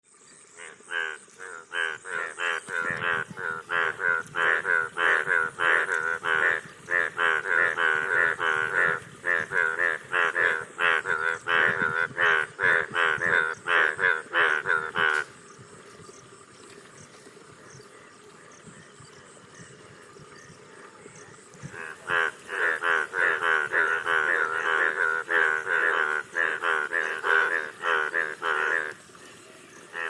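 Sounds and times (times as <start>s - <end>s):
frogs croaking: 0.0s - 30.0s.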